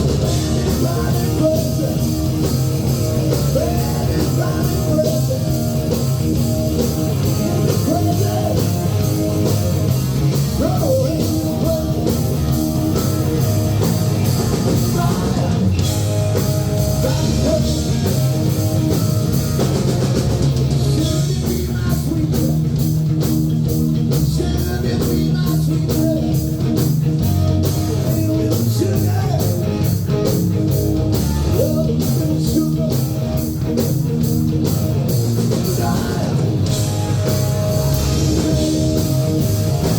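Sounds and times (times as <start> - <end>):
drum kit beat: 0.0 - 39.9
electric guitar: 0.0 - 39.9.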